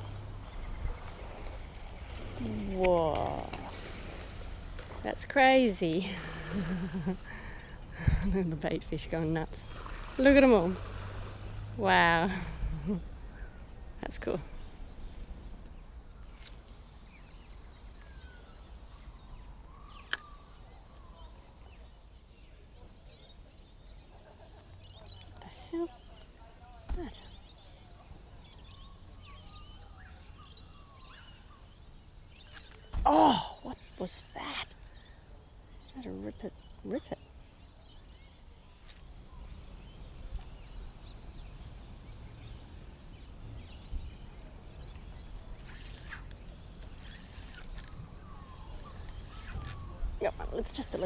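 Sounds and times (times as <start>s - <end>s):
wind rumble on microphone: 7.8s - 20.0s
faint bird chirps: 12.6s - 51.0s.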